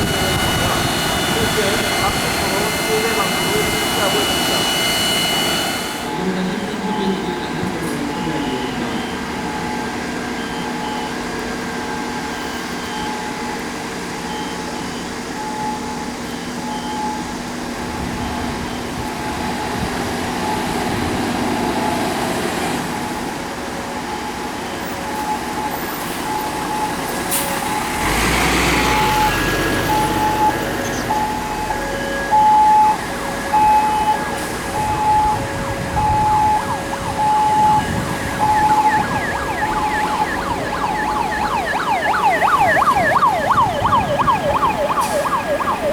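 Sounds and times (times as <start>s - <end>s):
heavy vehicle passing: 0.0s - 8.2s, 26.2s - 45.9s
emergency siren wailing hi-lo: 0.0s - 45.9s
vehicle engines running: 0.0s - 45.9s.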